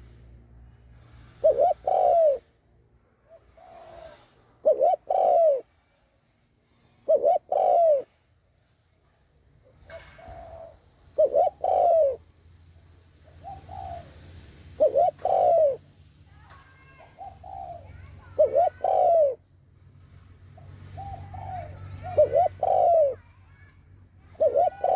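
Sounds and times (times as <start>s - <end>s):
dove cooing: 1.2s - 2.5s, 3.3s - 5.7s, 7.0s - 8.2s, 9.8s - 12.2s, 13.2s - 14.2s, 14.8s - 15.8s, 16.8s - 19.4s, 20.8s - 23.2s, 24.2s - 24.9s.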